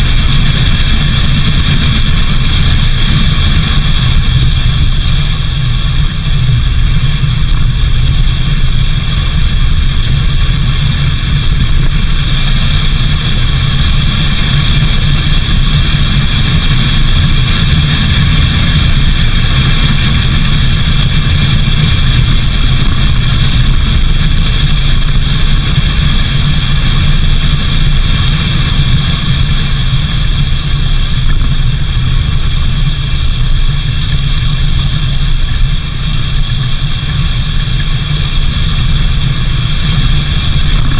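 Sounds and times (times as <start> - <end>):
car driving with low rumble: 0.0 - 40.9.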